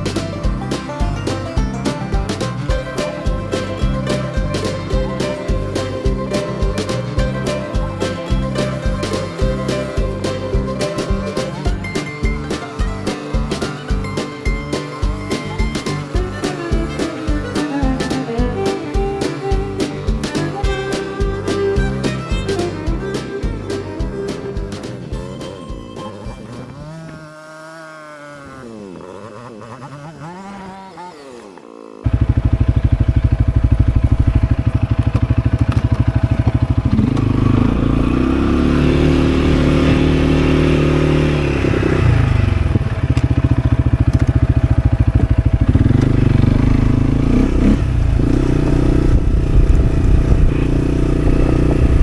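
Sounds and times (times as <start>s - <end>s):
fiddle music: 0.0s - 27.2s, 45.3s - 52.0s
farm vehicle engine driving: 0.0s - 52.0s.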